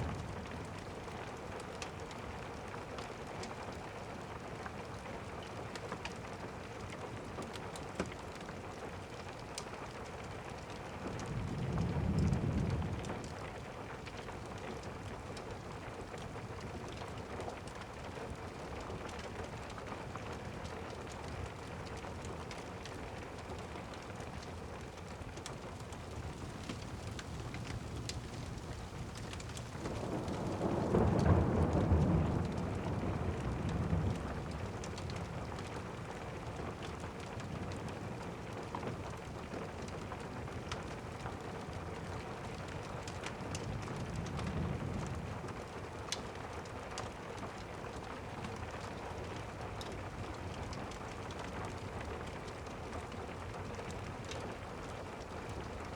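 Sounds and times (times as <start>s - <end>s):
steady rain: 0.0s - 55.9s
rolling thunder: 11.1s - 13.3s, 26.0s - 37.8s.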